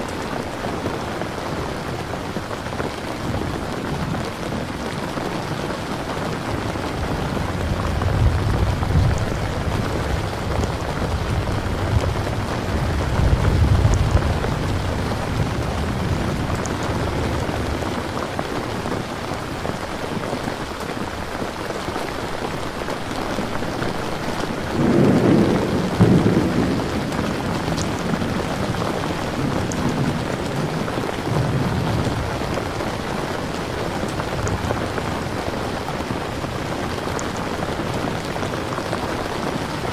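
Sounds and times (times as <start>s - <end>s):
heavy rain: 0.0s - 39.9s
rolling thunder: 7.0s - 18.2s, 24.7s - 32.8s.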